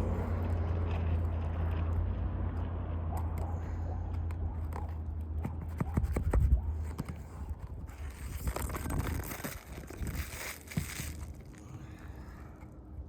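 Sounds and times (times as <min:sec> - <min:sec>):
shingles scraping and rustling: 0:06.0 - 0:11.9.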